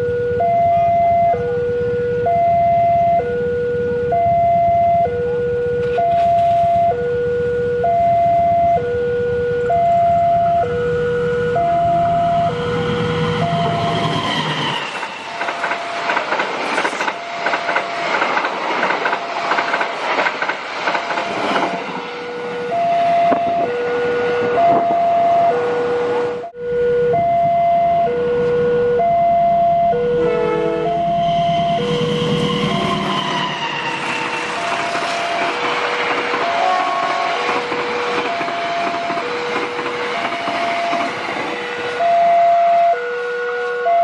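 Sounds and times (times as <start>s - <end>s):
two-tone crossing alarm: 0.0s - 44.0s
train wheels clattering over rails: 12.0s - 23.7s, 32.0s - 42.0s.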